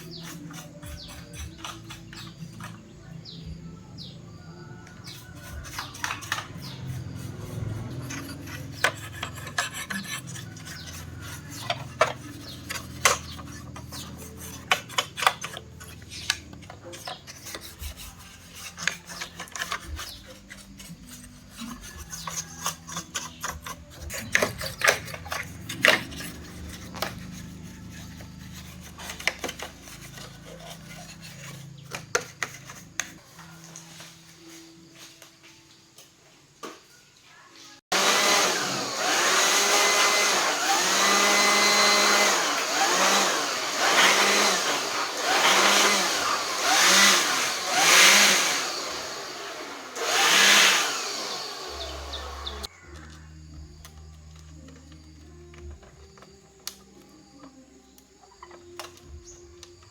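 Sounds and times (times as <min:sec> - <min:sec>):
tools clicking and scraping: 0:00.0 - 0:03.1, 0:04.8 - 0:33.8, 0:58.2 - 0:59.9.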